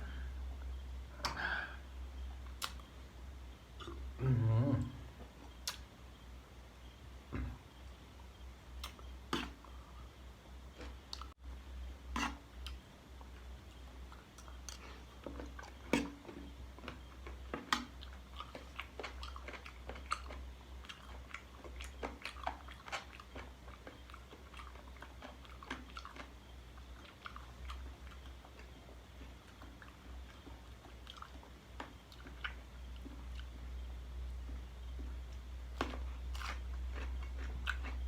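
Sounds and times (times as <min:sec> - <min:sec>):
wet chewing and crunching: 0:12.2 - 0:38.0.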